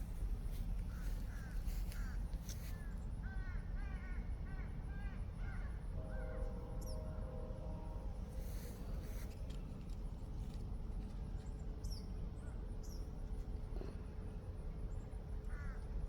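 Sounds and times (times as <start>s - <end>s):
steady low rumble: 0.0s - 3.4s.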